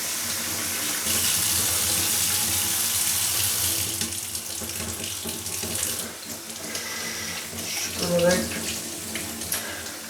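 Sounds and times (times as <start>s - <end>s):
tap water running into sink: 0.0s - 10.0s.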